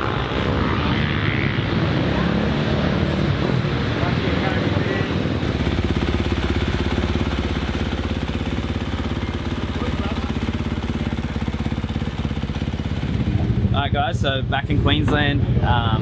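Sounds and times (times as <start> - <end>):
motorbike engine idling: 4.4 - 15.3.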